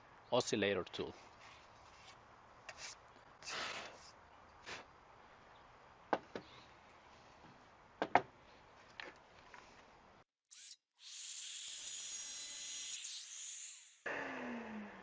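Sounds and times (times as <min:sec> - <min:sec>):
power tool high-pitched buzz: 0:10.5 - 0:15.0.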